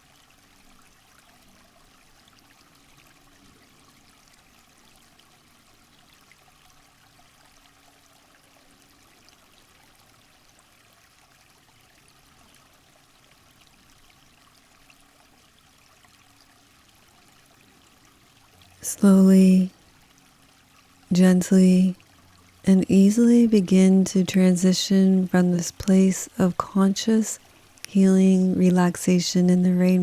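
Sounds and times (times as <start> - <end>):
faint rush of running water: 0.0 - 30.0.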